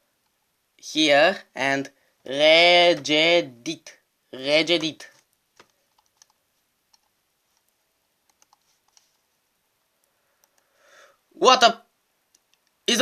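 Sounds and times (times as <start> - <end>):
computer keys clicking: 4.8 - 9.1, 10.4 - 10.7, 12.3 - 12.8.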